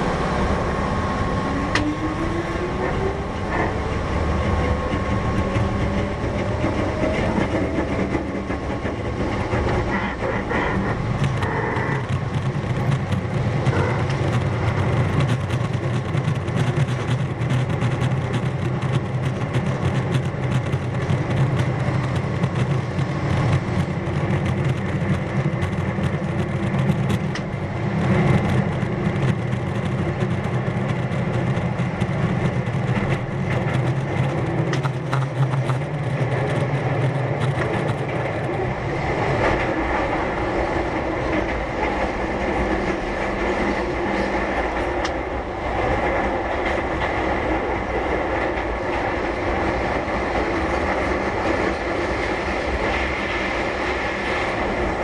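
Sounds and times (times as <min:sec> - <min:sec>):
train wheels rumbling on rail: 0:00.0 - 0:55.0
clicks over rail joints: 0:02.8 - 0:40.3.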